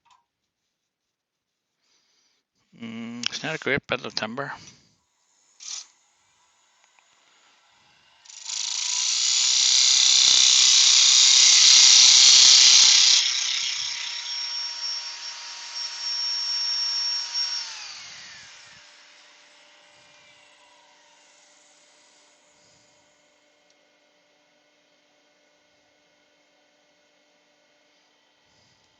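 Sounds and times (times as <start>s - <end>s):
power tool motor running: 5.3s - 23.3s.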